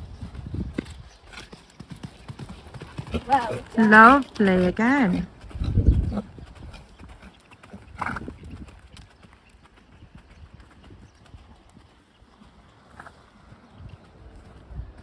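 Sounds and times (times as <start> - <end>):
horse hooves striking ground: 0.0 - 15.0.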